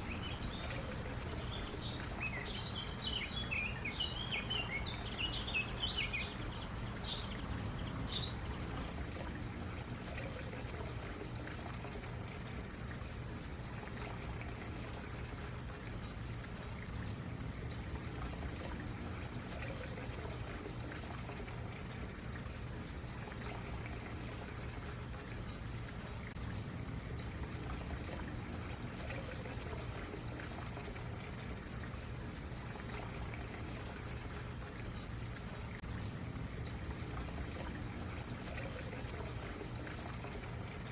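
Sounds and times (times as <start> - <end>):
high bird chirps: 0.0 - 8.6
creek water flowing over stones: 0.0 - 40.9.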